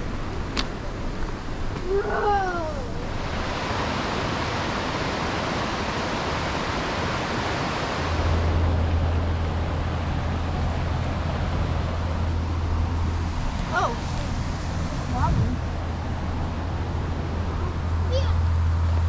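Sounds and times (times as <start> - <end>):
waterfall roar: 0.0 - 18.3.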